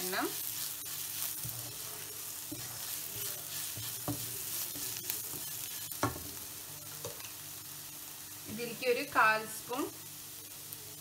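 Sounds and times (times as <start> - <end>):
onions sizzling in oil: 0.0 - 11.0
wooden spatula scraping pan: 0.4 - 6.2.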